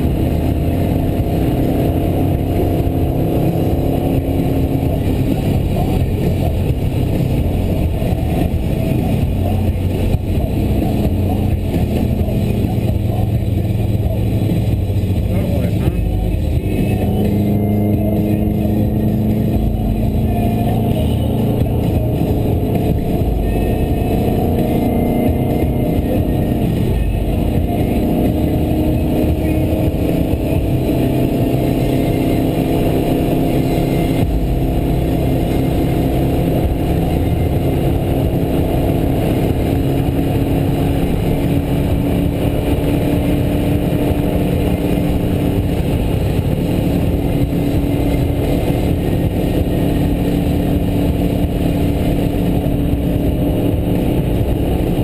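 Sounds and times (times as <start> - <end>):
car engine running: 0.0 - 55.0
tyre and road noise: 0.0 - 55.0.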